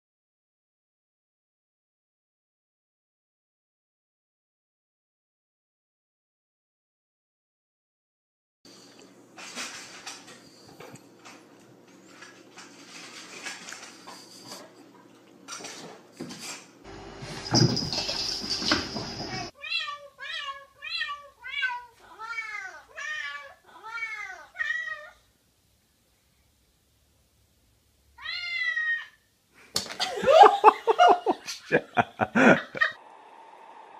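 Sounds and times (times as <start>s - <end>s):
knocks and clatter: 17.2s - 19.5s
cat meowing: 19.3s - 25.2s, 28.2s - 29.2s.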